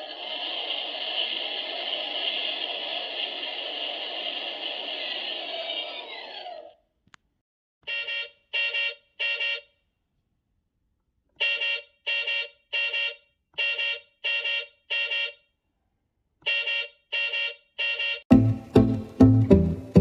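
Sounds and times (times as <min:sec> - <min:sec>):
cartoon horn beeps: 0:07.8 - 0:09.7, 0:11.4 - 0:15.4, 0:16.4 - 0:18.2.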